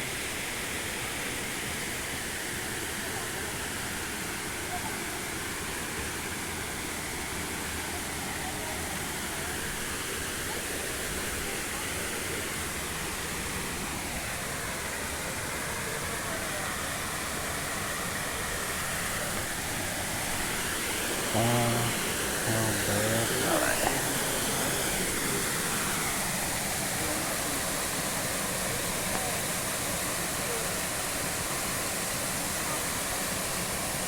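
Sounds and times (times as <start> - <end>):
waterfall rushing: 16.9 - 34.0
person speaking: 21.2 - 25.4.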